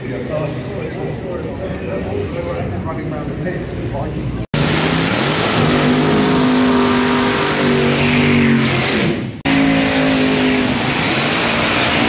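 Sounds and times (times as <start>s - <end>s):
second dragster engine running: 4.5s - 12.0s.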